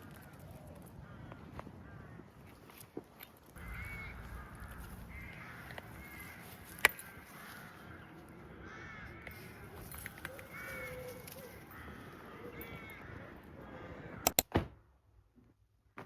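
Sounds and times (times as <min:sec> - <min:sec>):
birds harsh calls: 0:03.5 - 0:14.4
low rumble: 0:03.6 - 0:06.1
sharp click: 0:14.2 - 0:14.6.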